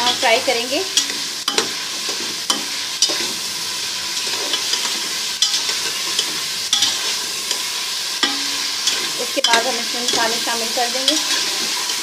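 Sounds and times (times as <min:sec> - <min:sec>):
meat sizzling in hot oil: 0:00.0 - 0:12.0
spoon scraping a pot: 0:04.2 - 0:12.0.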